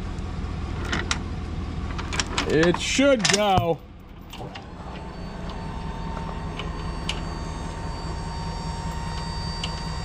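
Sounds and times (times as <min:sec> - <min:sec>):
truck engine humming: 0:00.0 - 0:10.0
hydraulic hoist whine: 0:04.1 - 0:10.0.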